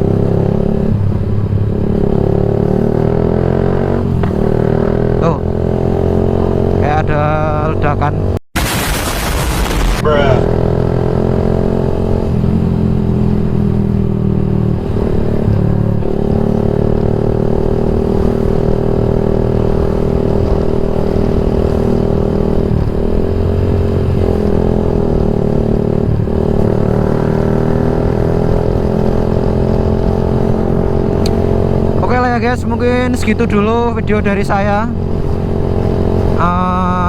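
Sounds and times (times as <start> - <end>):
motorcycle engine running: 0.0 - 8.3, 10.0 - 37.0.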